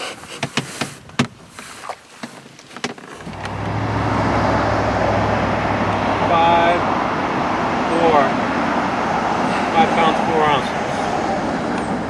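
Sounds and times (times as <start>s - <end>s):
handling knocks and clicks: 0.0s - 3.6s.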